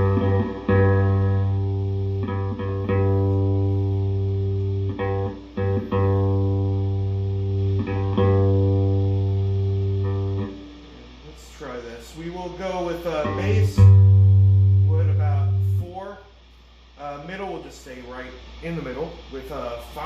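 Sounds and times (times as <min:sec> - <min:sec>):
plucked bass guitar notes: 0:00.0 - 0:10.9, 0:13.1 - 0:16.1.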